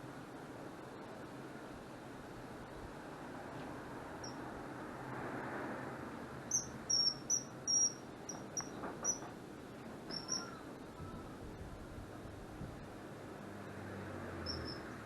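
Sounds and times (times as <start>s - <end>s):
kingfisher shrill calls: 6.5s - 9.2s, 10.1s - 10.6s, 14.5s - 14.8s.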